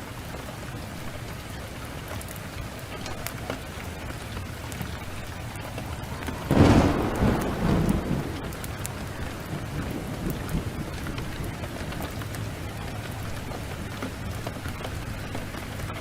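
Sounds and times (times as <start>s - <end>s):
heavy rain pouring: 0.0s - 16.0s
thunderclap rumbling: 4.6s - 15.8s.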